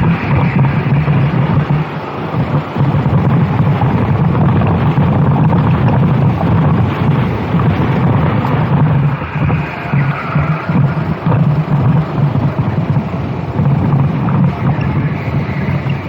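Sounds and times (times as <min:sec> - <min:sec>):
go-kart engine running hard: 0:00.0 - 0:16.0
wind buffeting microphone: 0:00.0 - 0:16.0.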